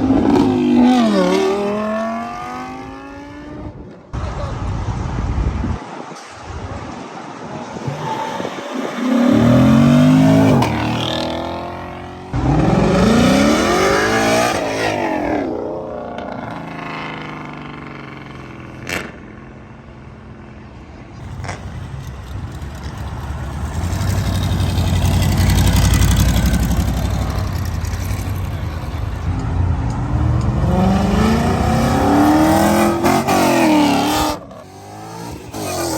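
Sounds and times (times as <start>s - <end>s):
cars accelerating hard: 0.0s - 4.0s, 7.4s - 19.2s, 21.2s - 35.9s.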